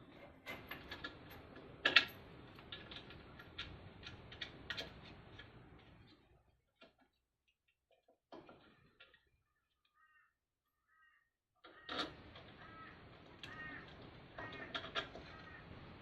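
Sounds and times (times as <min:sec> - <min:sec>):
hardware clicking and knocking: 0:00.1 - 0:06.1, 0:11.6 - 0:15.6.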